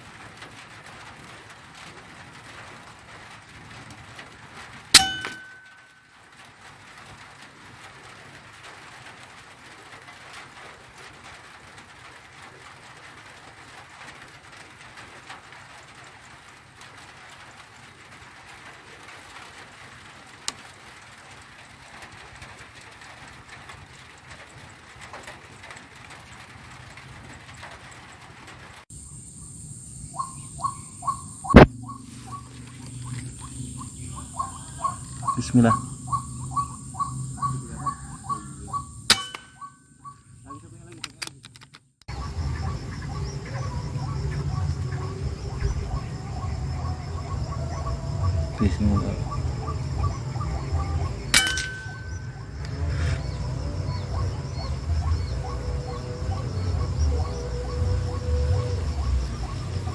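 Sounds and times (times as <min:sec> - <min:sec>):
brief metallic ring: 0:05.0 - 0:06.0, 0:39.1 - 0:39.7, 0:51.4 - 0:52.2.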